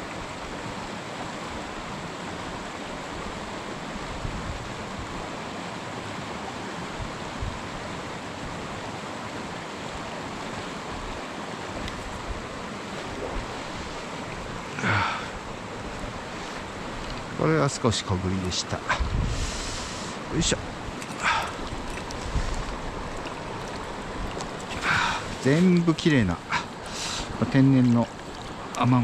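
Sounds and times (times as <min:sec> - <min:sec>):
stream water rushing: 0:00.0 - 0:29.0
wind buffeting microphone: 0:11.8 - 0:14.7, 0:18.9 - 0:28.8.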